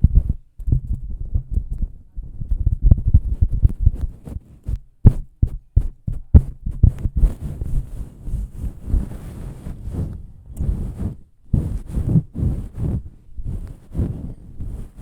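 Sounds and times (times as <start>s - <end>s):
soft thumps and taps: 0.0s - 9.3s
scratchy rustling: 1.8s - 15.0s.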